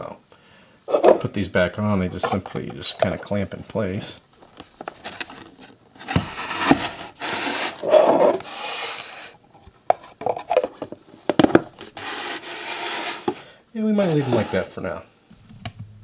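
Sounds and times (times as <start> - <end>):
plastic rubbing and scraping: 4.4 - 13.4, 14.0 - 14.8.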